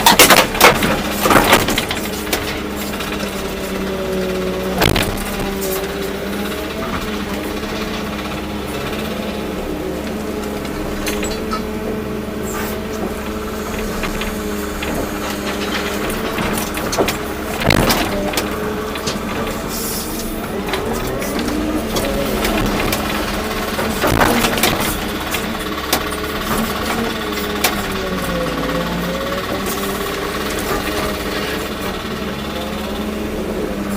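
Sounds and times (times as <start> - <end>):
loud knocks: 0.0 - 3.8, 4.7 - 5.9, 12.7 - 28.1
excavator diesel engine running: 0.0 - 33.9.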